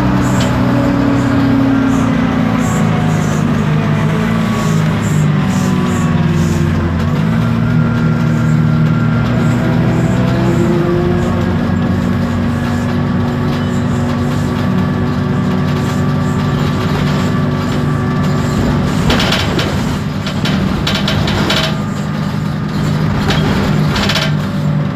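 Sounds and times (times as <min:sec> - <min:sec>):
bus diesel engine humming: 0:00.0 - 0:24.9
interior parts rattling: 0:05.1 - 0:24.9.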